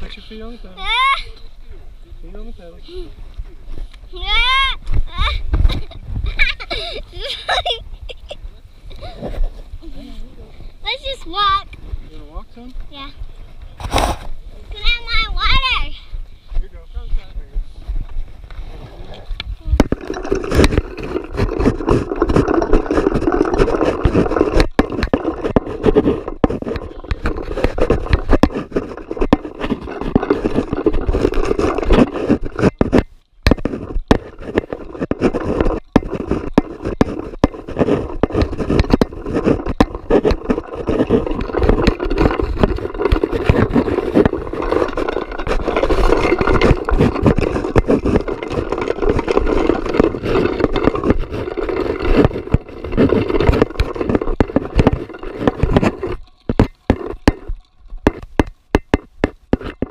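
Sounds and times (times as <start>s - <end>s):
scraping and rubbing: 13.7s - 16.0s, 18.1s - 59.9s
small knocks: 19.8s - 59.9s.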